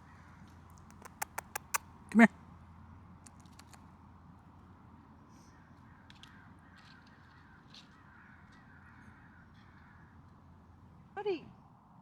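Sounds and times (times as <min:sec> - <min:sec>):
faint animal calls: 0:00.8 - 0:01.8
light clicks: 0:00.9 - 0:01.8.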